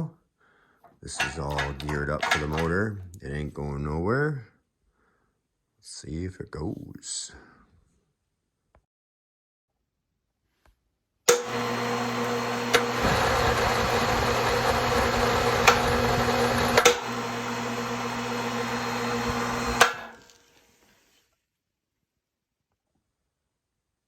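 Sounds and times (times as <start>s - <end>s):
electric hoist motor humming: 11.3s - 20.2s.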